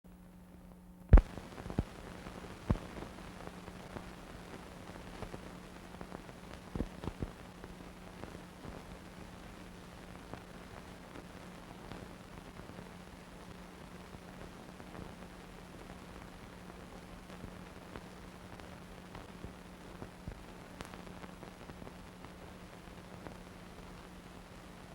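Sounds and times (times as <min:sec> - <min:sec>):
film playback hiss: 0:00.1 - 0:24.9
film clicks and pops: 0:01.1 - 0:01.9.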